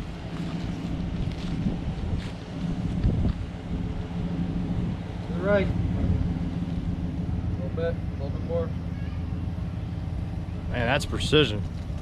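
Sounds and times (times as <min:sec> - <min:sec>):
wind buffeting microphone: 0:00.0 - 0:07.0
car engine idling: 0:00.0 - 0:12.0.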